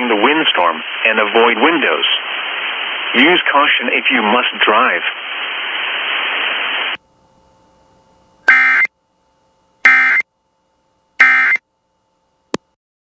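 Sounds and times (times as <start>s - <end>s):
buzzy digital tone bursts: 8.5s - 8.9s, 9.9s - 10.2s, 11.2s - 11.6s.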